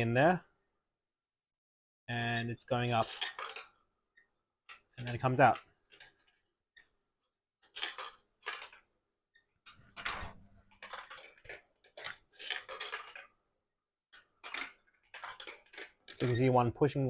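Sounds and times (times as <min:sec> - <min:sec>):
balls clicking and rattling on plastic: 0:02.6 - 0:17.0
marble run lift motor: 0:07.6 - 0:08.8, 0:09.7 - 0:13.4, 0:14.2 - 0:16.6.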